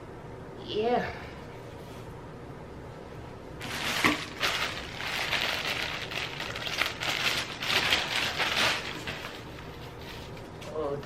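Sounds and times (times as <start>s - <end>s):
packaging rustling and crinkling: 3.6s - 10.7s.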